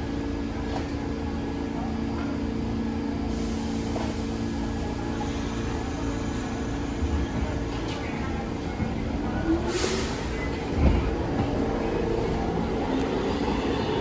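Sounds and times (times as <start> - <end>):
subway train electric hum: 0.0 - 14.0
train low rumble: 0.0 - 14.0.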